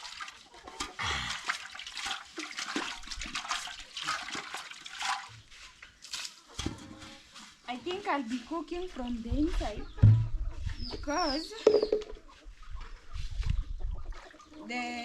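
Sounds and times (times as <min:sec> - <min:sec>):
water splashing and pouring: 0:00.0 - 0:06.6.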